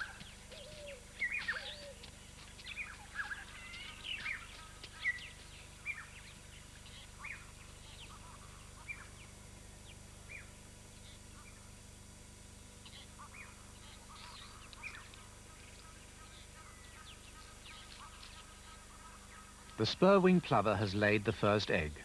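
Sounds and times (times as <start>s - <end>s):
lower curved bird calls: 0.0s - 6.2s.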